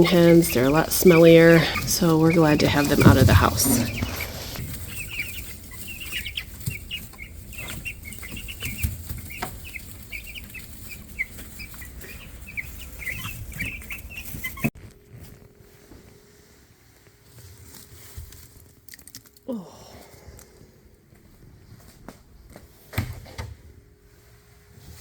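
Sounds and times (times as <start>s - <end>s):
chicks peeping: 0.0s - 14.7s.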